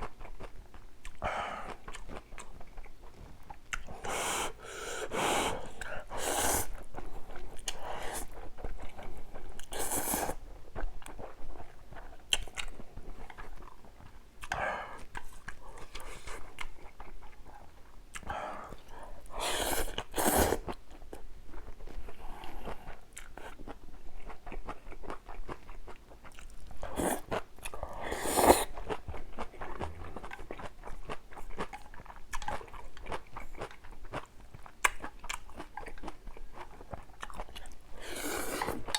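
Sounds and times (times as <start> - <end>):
person chewing crunchy food: 0.0 - 4.4, 19.8 - 38.9.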